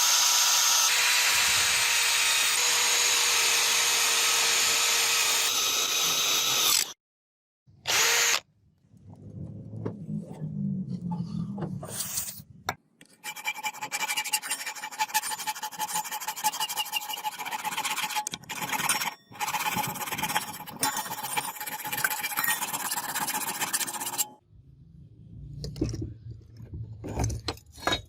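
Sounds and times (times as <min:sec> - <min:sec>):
steady tool whine: 0:00.0 - 0:07.0, 0:07.9 - 0:08.4
tool rasping on metal: 0:13.2 - 0:24.4.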